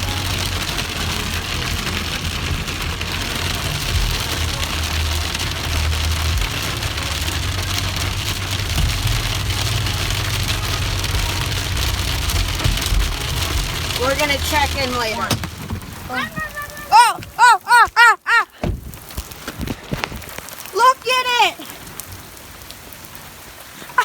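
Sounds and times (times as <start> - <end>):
low rumble: 0.0 - 16.9
heavy rain beating down: 0.0 - 24.0.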